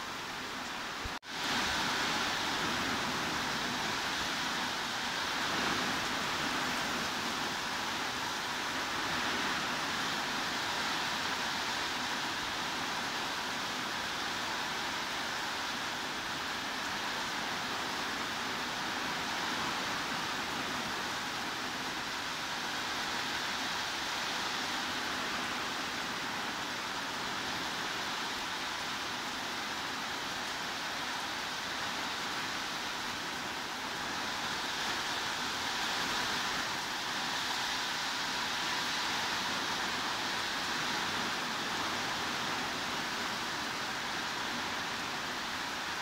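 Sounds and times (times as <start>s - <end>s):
heavy rain hiss: 0.0s - 46.0s.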